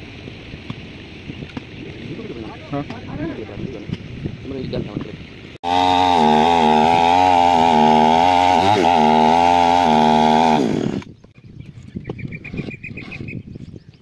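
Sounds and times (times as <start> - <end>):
chainsaw running at high revs: 5.6 - 11.1.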